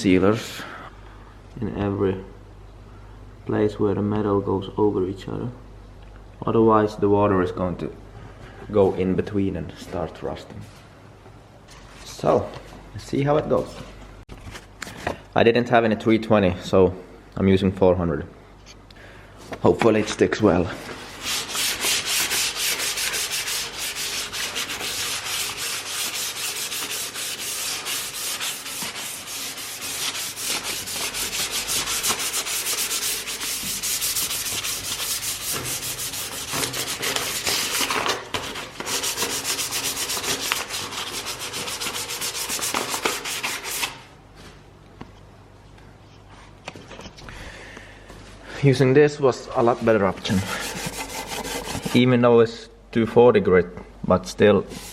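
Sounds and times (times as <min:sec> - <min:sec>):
sandpaper rubbing on metal: 0:21.0 - 0:44.0, 0:50.4 - 0:52.0.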